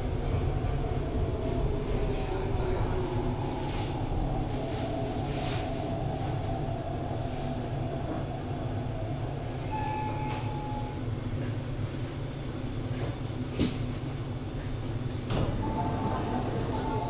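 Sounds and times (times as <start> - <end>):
train low rumble: 0.0 - 17.0
brief high tone: 9.7 - 11.0.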